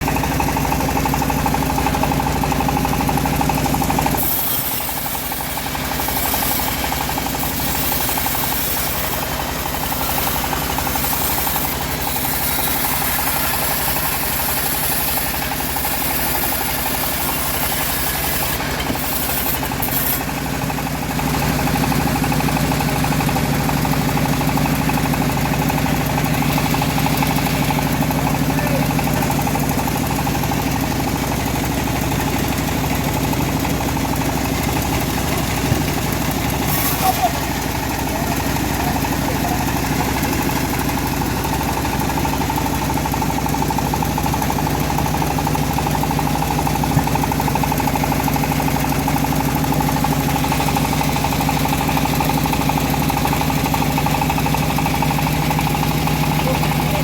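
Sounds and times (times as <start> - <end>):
bandsaw mill engine running: 0.0 - 57.0
saw blade hissing through log: 1.6 - 30.5, 34.1 - 53.8.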